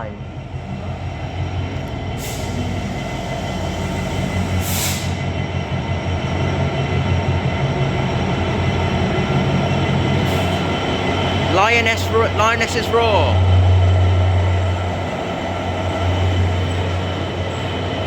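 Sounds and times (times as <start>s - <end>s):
diesel locomotive engine running: 0.0s - 18.0s
short air hisses: 2.2s - 2.8s, 3.8s - 5.2s.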